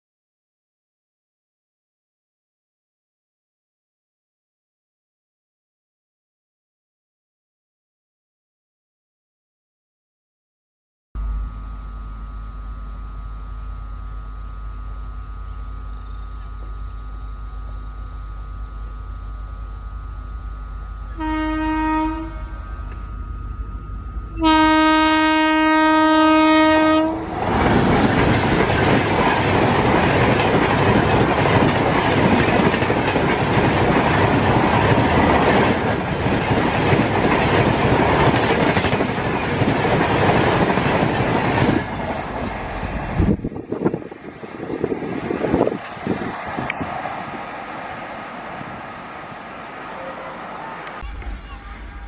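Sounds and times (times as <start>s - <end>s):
train horn blasts: 11.2s - 23.4s, 24.1s - 27.6s, 49.9s - 52.0s.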